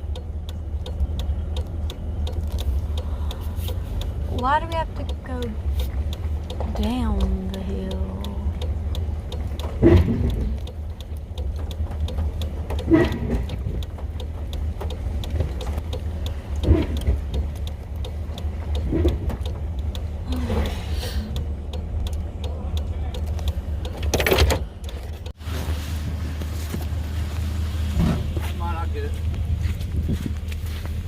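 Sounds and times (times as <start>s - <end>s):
fast even ticking: 0.0s - 25.3s
truck engine droning: 0.0s - 31.0s
knocks and rattles: 9.5s - 10.7s, 11.4s - 15.9s, 23.2s - 25.3s.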